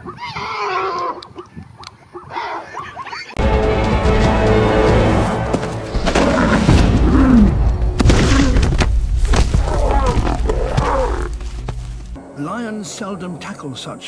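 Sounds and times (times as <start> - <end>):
low music drone: 3.4 - 9.3
lions growling: 5.8 - 12.2.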